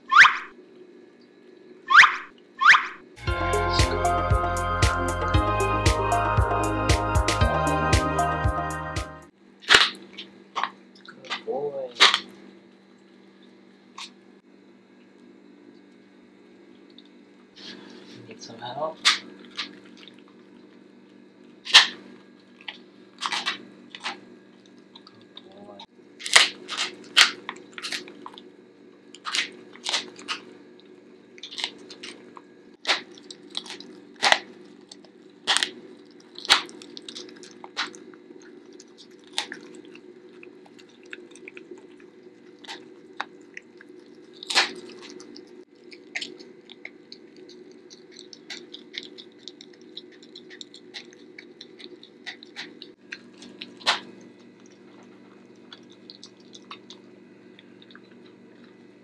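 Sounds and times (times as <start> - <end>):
dog crunching bones: 22.6 - 25.5, 26.2 - 28.4, 29.2 - 58.8.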